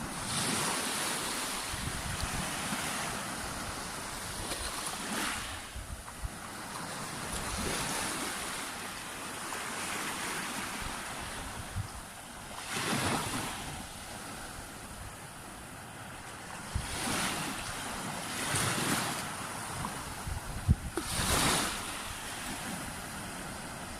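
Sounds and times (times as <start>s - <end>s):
waves breaking on beach: 0.0s - 23.9s
wind buffeting microphone: 1.6s - 6.6s, 10.7s - 12.2s, 19.7s - 23.9s.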